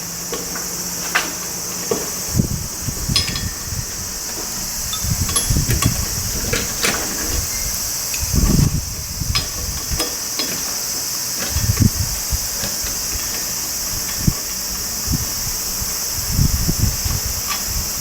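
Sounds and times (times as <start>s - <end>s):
insects chirring: 0.0s - 18.0s
metallic clinks: 3.1s - 8.3s.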